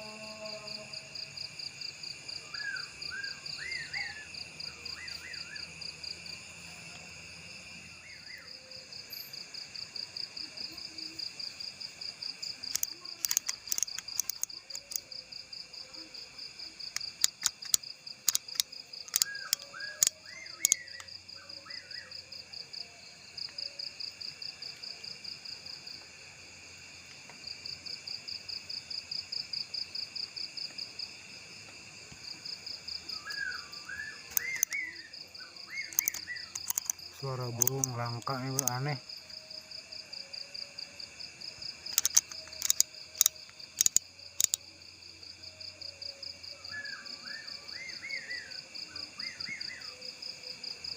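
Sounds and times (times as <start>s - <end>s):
fast-pulsing insect trill: 0.0s - 26.0s, 32.4s - 50.9s
sharp clicks: 12.6s - 15.1s, 16.9s - 21.2s, 34.3s - 34.9s, 35.8s - 39.0s, 41.8s - 44.6s.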